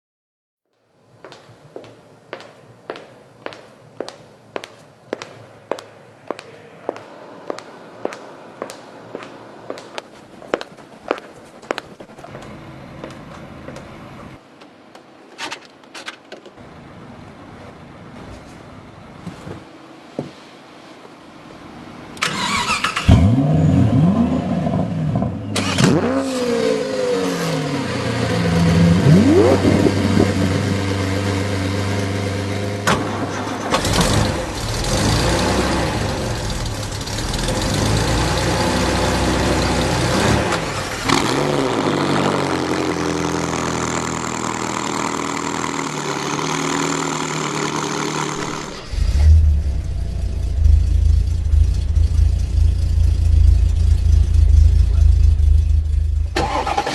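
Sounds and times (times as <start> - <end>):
sports car engines revving: 22.4 - 56.9.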